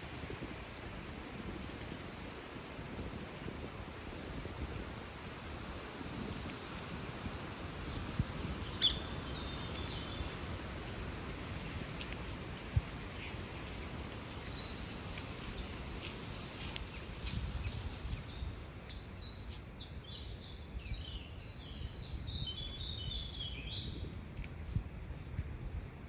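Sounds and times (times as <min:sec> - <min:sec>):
small birds chirping: 0:08.6 - 0:11.8, 0:12.6 - 0:24.0.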